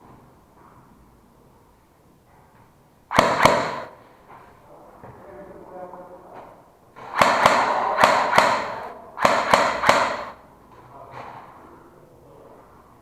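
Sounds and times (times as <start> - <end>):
airsoft gun shots: 3.1 - 4.1, 7.0 - 10.4.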